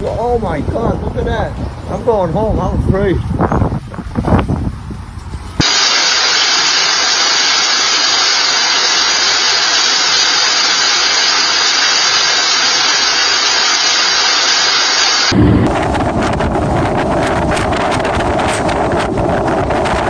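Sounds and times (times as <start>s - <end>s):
loud steady rushing hiss: 5.6s - 16.3s.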